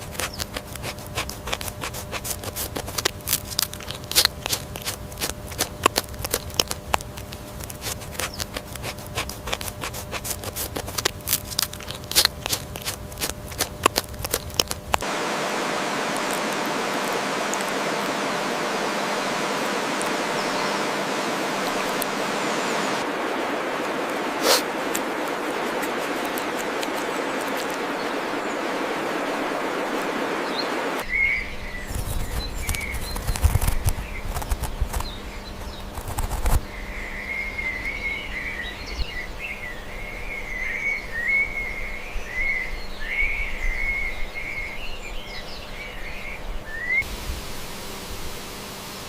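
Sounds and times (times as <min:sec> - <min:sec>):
steady rushing noise: 0:00.0 - 0:35.0, 0:47.0 - 0:49.0.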